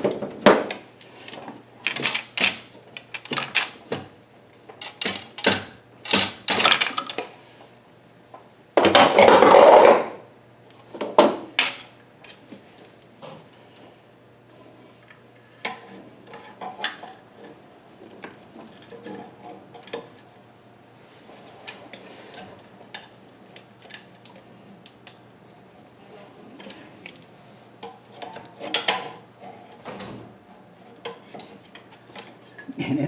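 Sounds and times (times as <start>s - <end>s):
metal tools clinking on engine: 1.2s - 4.0s, 4.8s - 7.2s.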